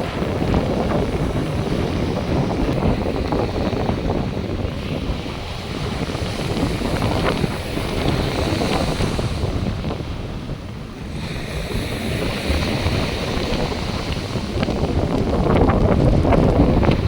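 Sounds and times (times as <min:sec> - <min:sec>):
surf washing onto beach: 0:00.0 - 0:17.0
wind buffeting microphone: 0:00.0 - 0:17.0.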